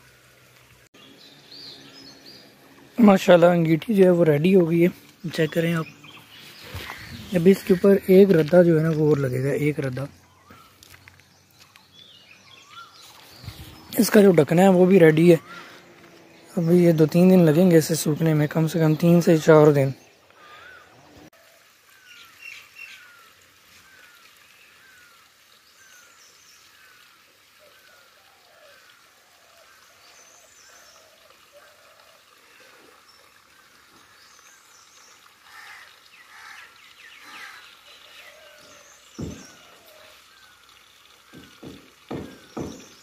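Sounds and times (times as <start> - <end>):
other birds calling: 0.0 - 21.3, 21.9 - 43.0
knock: 39.2 - 39.6, 41.3 - 43.0.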